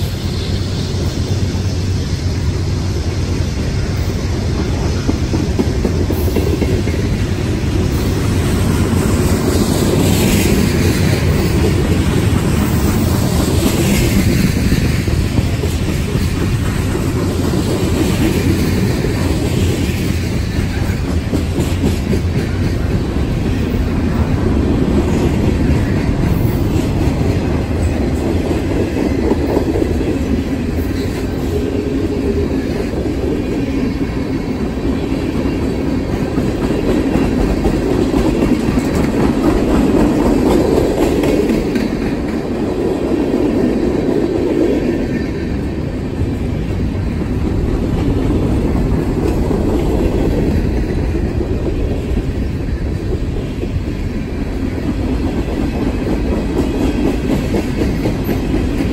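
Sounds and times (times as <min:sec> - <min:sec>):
freight train wheels rumbling: 0:00.0 - 0:58.9
wheels clicking over rail joints: 0:34.1 - 0:44.4.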